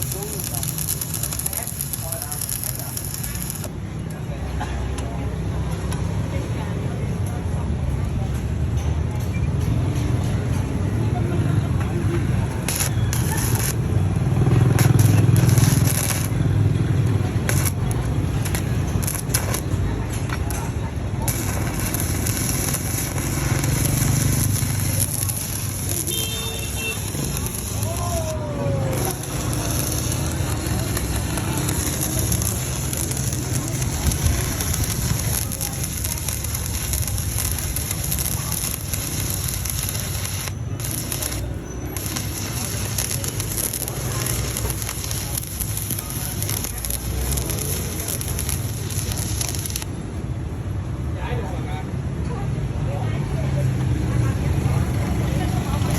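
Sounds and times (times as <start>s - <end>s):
spatter crackles: 0.0s - 4.2s, 12.1s - 50.0s
welding arc crackling: 0.0s - 4.2s, 11.6s - 50.0s, 54.8s - 55.9s.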